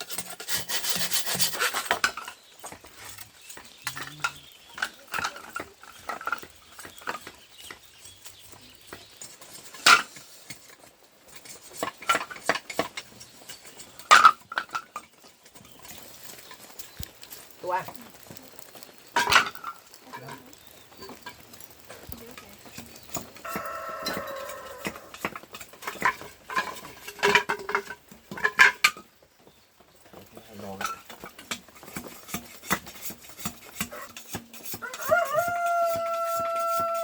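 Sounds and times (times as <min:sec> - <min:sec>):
rasping hand scraping: 0:00.0 - 0:02.1.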